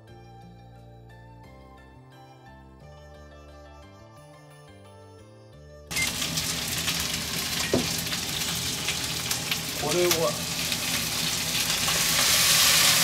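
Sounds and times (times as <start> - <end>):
chicken sizzling in hot oil: 5.9 - 13.0.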